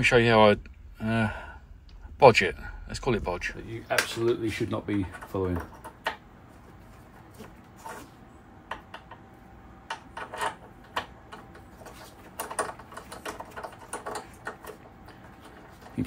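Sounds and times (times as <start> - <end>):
low steady background: 0.0 - 16.0
small tools clicking and tapping: 8.7 - 16.0.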